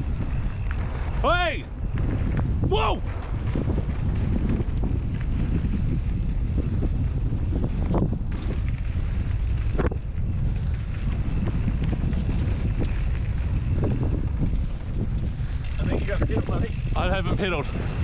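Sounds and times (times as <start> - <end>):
bicycle rattling over bumps: 0.0 - 18.0
bicycle ride rumble: 0.0 - 18.0
wind buffeting microphone: 0.0 - 18.0.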